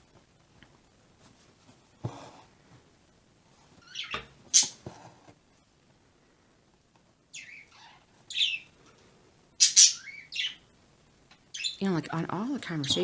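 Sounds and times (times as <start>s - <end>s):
parakeet chirping: 3.8s - 4.8s, 7.3s - 8.7s, 9.6s - 10.6s, 11.5s - 12.2s.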